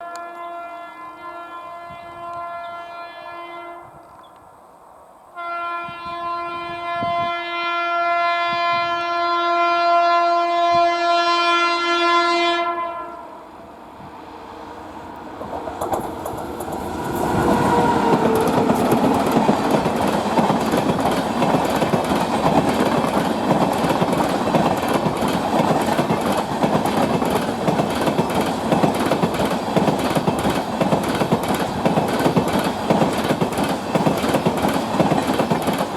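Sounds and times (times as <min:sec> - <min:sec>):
train horn blast: 0:00.0 - 0:04.2, 0:05.3 - 0:14.3, 0:17.0 - 0:19.5
passing train rush: 0:00.0 - 0:35.9.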